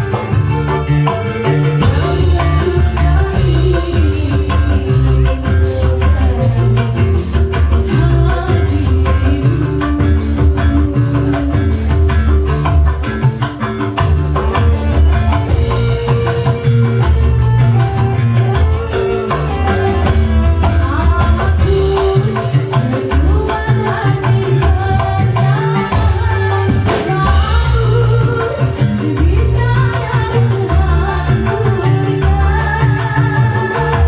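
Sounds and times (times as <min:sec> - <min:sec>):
person singing: 0:00.0 - 0:13.2, 0:18.0 - 0:34.0
live band music: 0:00.0 - 0:34.0
steady drum beat: 0:00.0 - 0:34.0.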